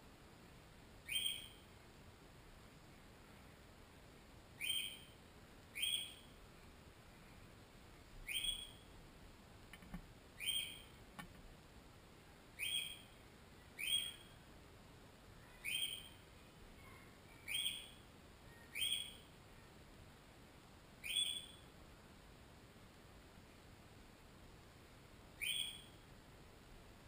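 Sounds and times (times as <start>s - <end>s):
bird calling: 1.1s - 1.6s, 4.6s - 5.1s, 5.7s - 6.3s, 8.2s - 8.8s, 10.4s - 10.9s, 12.6s - 13.1s, 13.8s - 14.3s, 15.5s - 16.2s, 18.6s - 19.2s, 21.0s - 21.6s, 25.4s - 26.0s.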